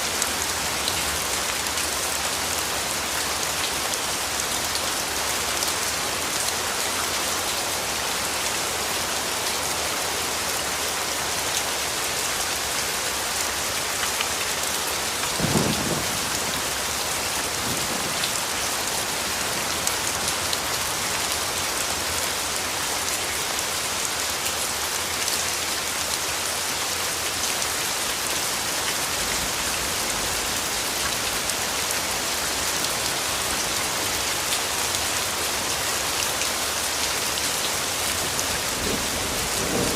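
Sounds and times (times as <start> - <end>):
rain pattering: 0.0 - 39.9
distant thunder rumble: 15.4 - 16.7.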